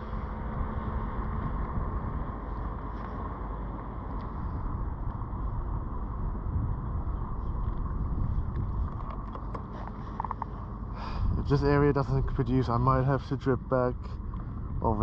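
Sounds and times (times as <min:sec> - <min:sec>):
wind buffeting microphone: 0:00.0 - 0:15.0
water lapping against kayak: 0:13.9 - 0:15.0.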